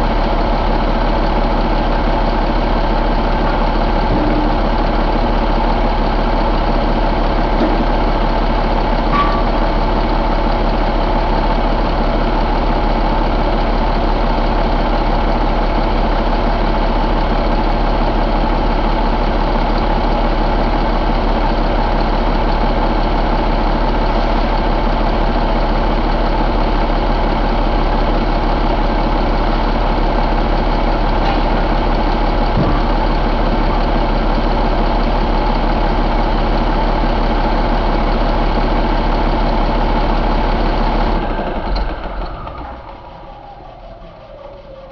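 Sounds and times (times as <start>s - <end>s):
diesel engine idling: 0.0s - 44.9s.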